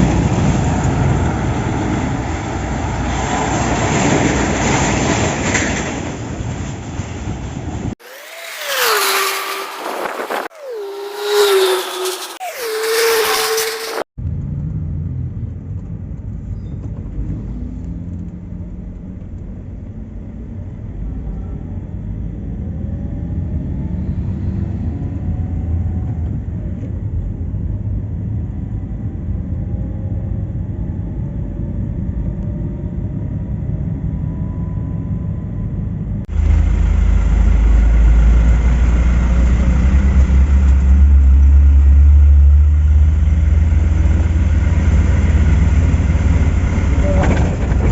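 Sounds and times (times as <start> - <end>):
road traffic: 0.0 - 47.9
deep close engine rumble: 25.3 - 47.9.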